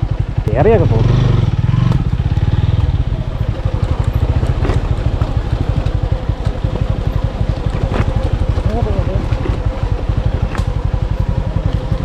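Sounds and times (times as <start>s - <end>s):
motorcycle engine running: 0.0s - 12.0s
sharp knocks from bike: 10.3s - 10.8s.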